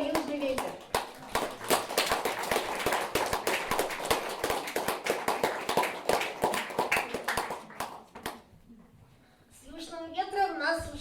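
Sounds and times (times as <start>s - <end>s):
small audience applauding: 0.0s - 8.6s.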